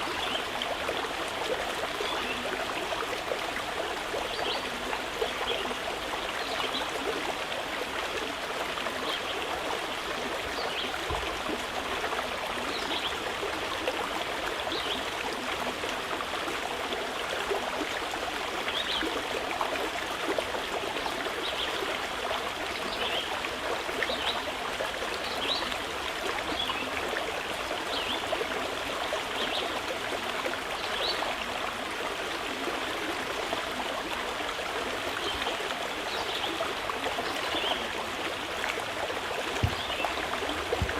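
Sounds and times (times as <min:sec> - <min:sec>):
river flowing over rocks: 0:33.7 - 0:40.9.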